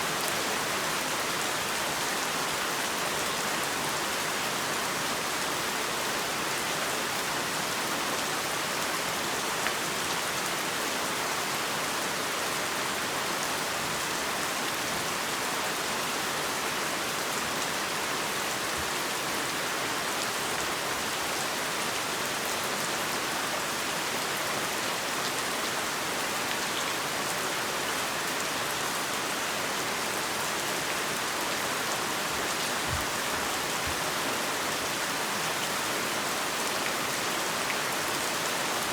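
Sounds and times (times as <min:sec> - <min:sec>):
heavy rain falling: 0:23.8 - 0:38.9.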